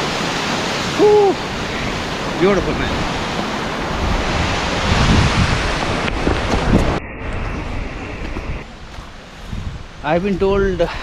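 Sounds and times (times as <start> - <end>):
waterfall rushing: 0.0 - 6.3
wind buffeting microphone: 1.0 - 11.0.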